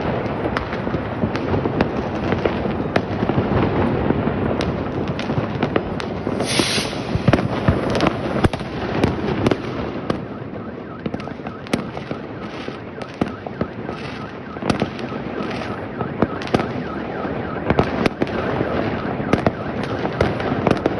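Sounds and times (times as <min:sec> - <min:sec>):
fireworks bangs and cracks: 0:00.0 - 0:20.9
rumble of distant fireworks: 0:00.0 - 0:20.9
firework hiss: 0:06.2 - 0:08.5.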